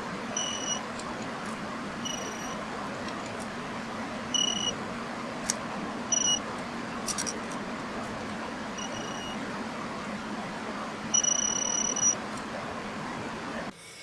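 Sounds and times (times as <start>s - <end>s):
steady background hum: 0.0s - 14.0s
electronic beeper beeping: 0.3s - 0.9s, 2.0s - 2.6s, 4.3s - 4.8s, 6.1s - 6.5s, 8.7s - 9.4s, 11.1s - 12.3s.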